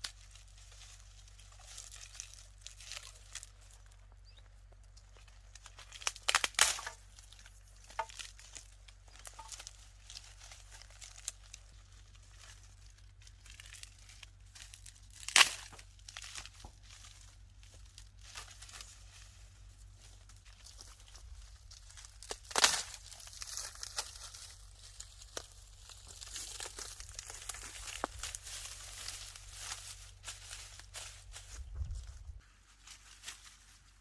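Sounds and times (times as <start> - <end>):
dry reeds rustling and crackling: 0.0 - 34.0.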